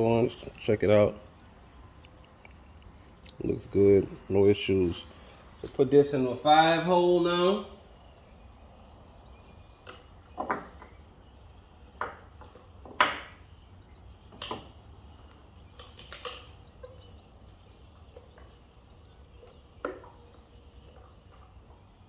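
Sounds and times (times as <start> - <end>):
clicks and knocks of engine parts: 9.8 - 11.0, 12.0 - 13.4, 14.3 - 17.0.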